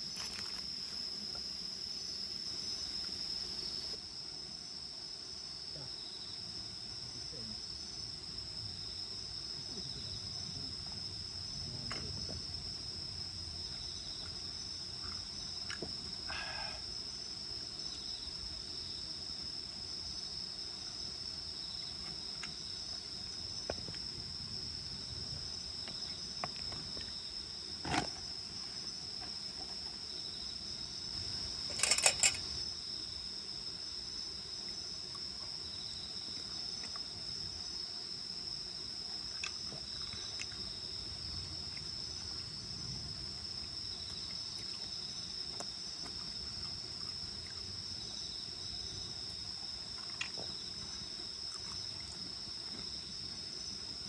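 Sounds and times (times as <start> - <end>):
insects chirring: 0.0 - 54.0
sharp clicks: 31.7 - 32.5.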